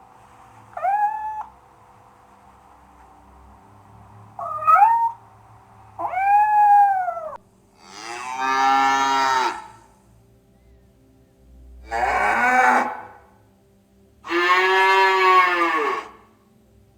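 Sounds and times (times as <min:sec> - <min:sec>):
lower animal call: 0:00.2 - 0:01.7, 0:04.3 - 0:05.4, 0:06.0 - 0:09.9, 0:11.8 - 0:13.3, 0:14.2 - 0:16.4
cat meowing: 0:00.7 - 0:01.5, 0:04.4 - 0:05.2, 0:06.0 - 0:07.4.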